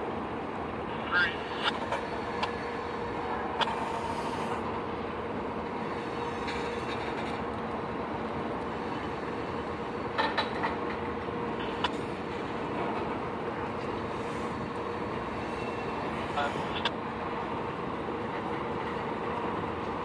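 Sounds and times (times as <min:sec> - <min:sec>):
freight train rolling past: 0:00.0 - 0:20.0.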